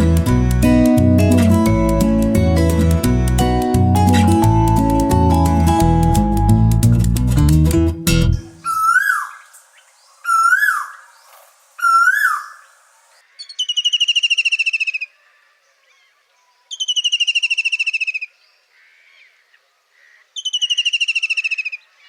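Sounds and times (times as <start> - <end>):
bird calling with trills: 8.5 - 9.5, 10.2 - 11.2, 11.8 - 12.7, 13.3 - 15.1, 16.7 - 19.3, 20.0 - 21.9.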